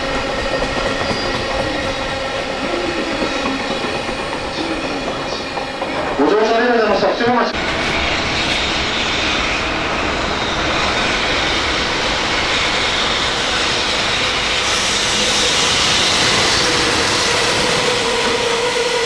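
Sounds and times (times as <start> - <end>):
freight train running past: 0.0 - 19.0.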